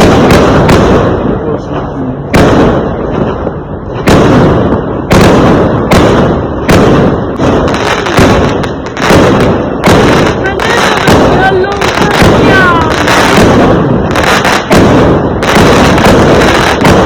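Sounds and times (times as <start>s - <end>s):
fireworks banging: 0.0s - 17.0s.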